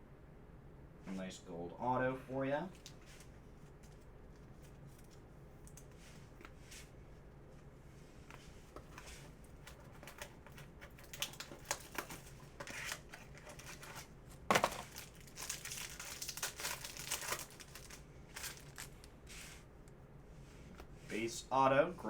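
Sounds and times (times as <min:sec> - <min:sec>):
plastic wrapper crinkling and tearing: 0:09.6 - 0:19.1.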